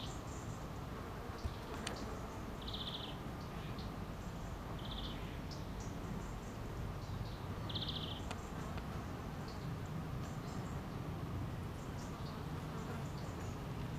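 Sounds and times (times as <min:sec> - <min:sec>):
faint high bird chirps: 0:01.4 - 0:08.6.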